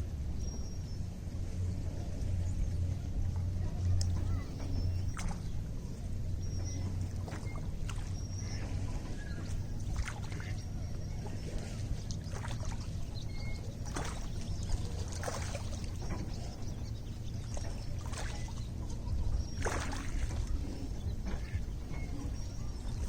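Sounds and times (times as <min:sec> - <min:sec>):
steady low rumble: 0:00.0 - 0:23.0
lake water lapping: 0:01.5 - 0:23.0
small splashes: 0:03.7 - 0:06.0, 0:06.7 - 0:23.0.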